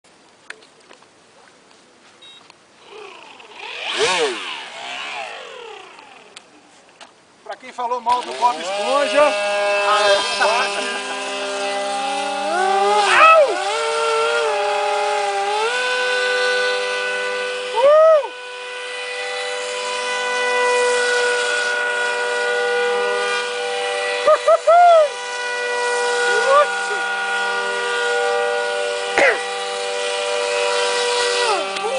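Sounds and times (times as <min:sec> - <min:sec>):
short rising and falling tones: 0:02.2 - 0:06.4
model speedboat motor buzzing: 0:02.8 - 0:06.9, 0:08.0 - 0:31.9.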